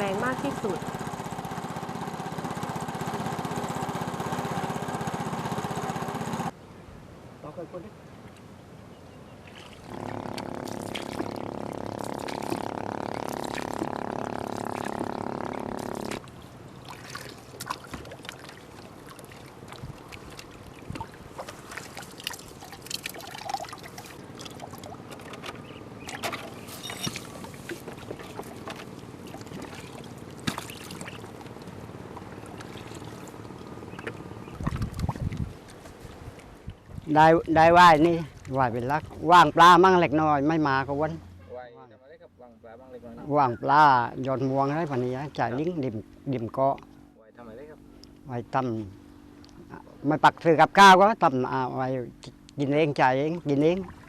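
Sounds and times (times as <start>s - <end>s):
boat engine running: 0.0s - 6.6s, 9.6s - 41.5s, 42.9s - 54.0s
water trickling and splashing: 9.3s - 39.9s, 53.0s - 54.0s.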